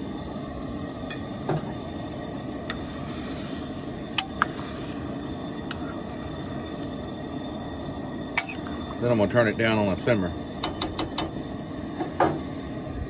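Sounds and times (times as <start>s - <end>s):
stew pot hissing: 0.0s - 13.0s
metal clinks against pot: 10.6s - 11.5s.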